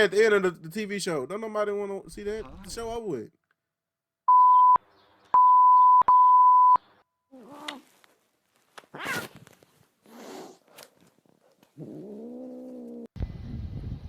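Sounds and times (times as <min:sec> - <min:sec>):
censor bleep tone: 0:04.3 - 0:04.8, 0:05.4 - 0:06.9.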